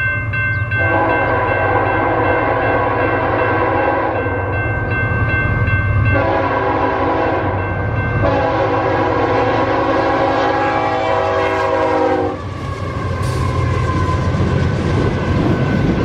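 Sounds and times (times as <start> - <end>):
passing train rumble: 0.0 - 16.0
locomotive horn blasts: 0.8 - 4.4, 6.0 - 12.5.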